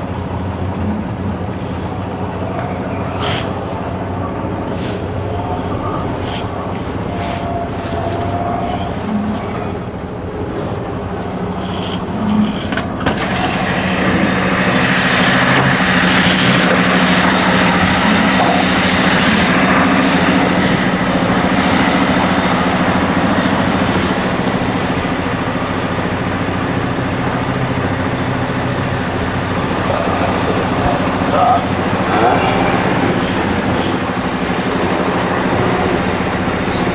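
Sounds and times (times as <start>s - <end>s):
diesel engine drone: 0.0s - 36.9s
road noise: 0.0s - 36.9s.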